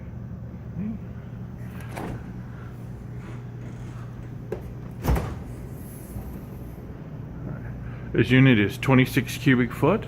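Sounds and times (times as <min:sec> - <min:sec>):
refrigerator hum: 0:00.0 - 0:10.0
refrigerator door thud: 0:01.6 - 0:06.6.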